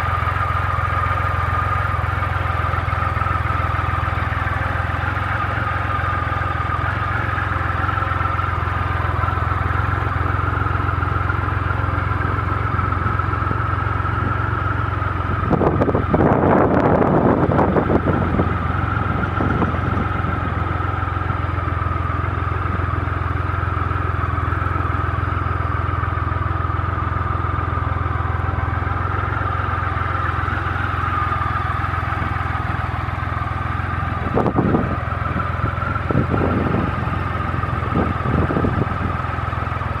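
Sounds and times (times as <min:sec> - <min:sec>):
motorcycle engine idling: 0:00.0 - 0:40.0.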